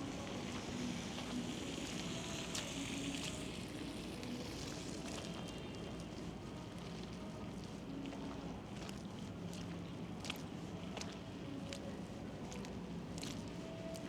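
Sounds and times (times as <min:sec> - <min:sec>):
steady hiss of snowstorm: 0:00.0 - 0:04.9.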